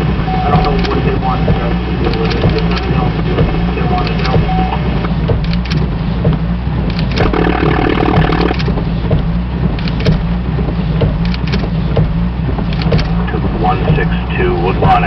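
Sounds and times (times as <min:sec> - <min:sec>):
vehicle engine rumbling: 0:00.0 - 0:15.0
brief hum: 0:07.2 - 0:08.7.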